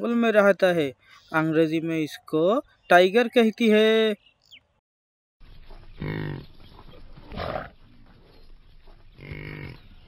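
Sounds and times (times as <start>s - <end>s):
tiger growling: 6.0s - 8.4s.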